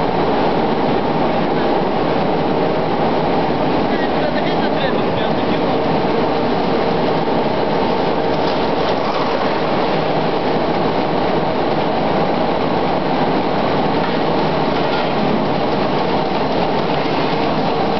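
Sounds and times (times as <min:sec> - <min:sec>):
faint constant hum: 0:00.0 - 0:17.9
presses clattering: 0:13.9 - 0:17.9.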